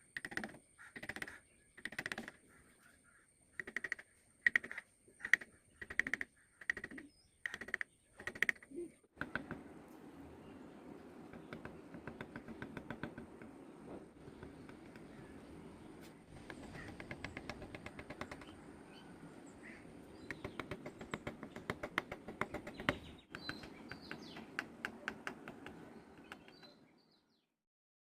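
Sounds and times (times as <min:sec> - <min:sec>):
birds chirping: 0:00.0 - 0:27.6
sharp rapid clicks: 0:00.2 - 0:02.4, 0:03.6 - 0:08.6, 0:09.2 - 0:09.6, 0:11.3 - 0:13.6, 0:16.4 - 0:18.7, 0:20.2 - 0:26.7.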